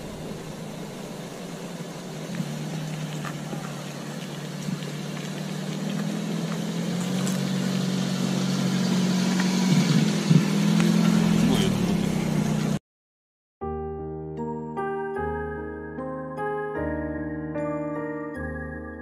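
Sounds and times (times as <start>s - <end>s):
van engine running: 0.0s - 12.8s.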